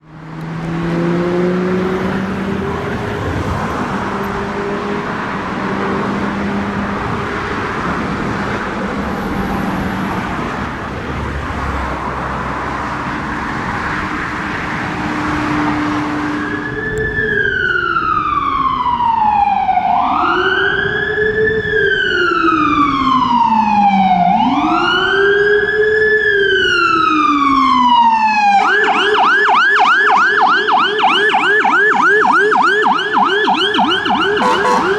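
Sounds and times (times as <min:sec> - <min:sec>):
fire engine siren: 0:00.0 - 0:34.9
street traffic: 0:00.0 - 0:34.9.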